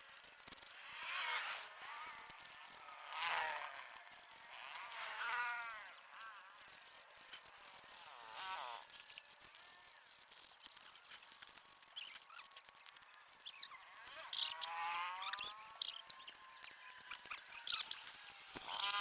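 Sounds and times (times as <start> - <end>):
insects droning: 5.4 - 19.0.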